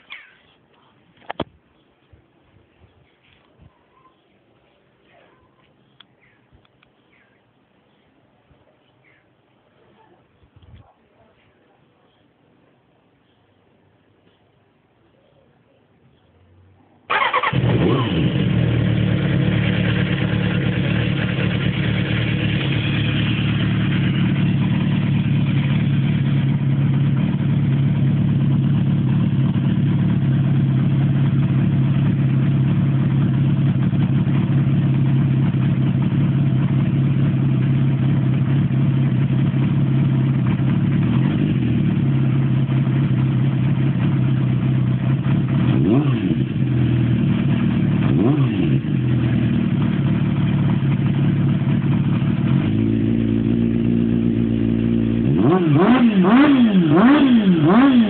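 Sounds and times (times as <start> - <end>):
motorcycle engine idling: 17.1 - 58.0.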